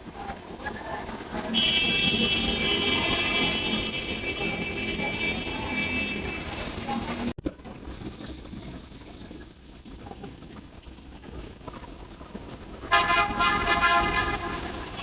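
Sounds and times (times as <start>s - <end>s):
street traffic rumble: 0.0s - 15.0s
vehicle horn: 1.5s - 6.5s, 12.9s - 15.0s.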